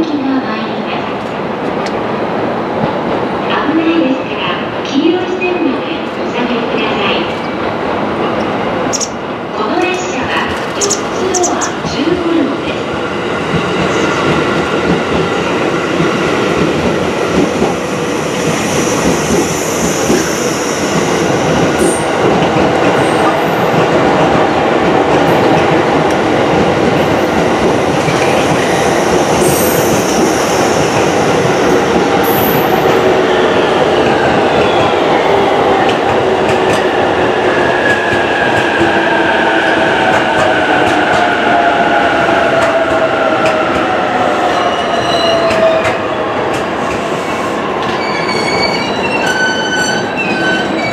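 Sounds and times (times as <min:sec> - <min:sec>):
train wheels clacking and squealing: 0:13.5 - 0:24.4, 0:25.1 - 0:50.9.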